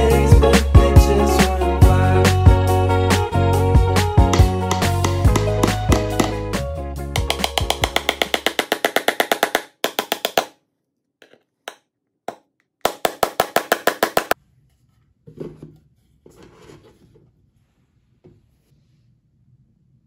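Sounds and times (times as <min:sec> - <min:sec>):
small hammer tapping nails: 0:04.3 - 0:06.4, 0:07.2 - 0:10.6, 0:11.2 - 0:14.4.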